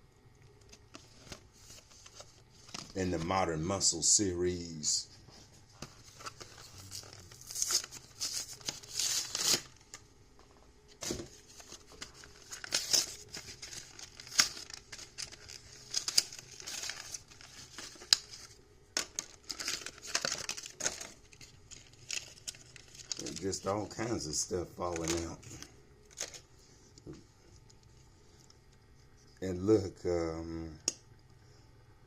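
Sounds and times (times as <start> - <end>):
plastic packaging crinkling and tearing: 5.8 - 10.0, 10.9 - 26.5.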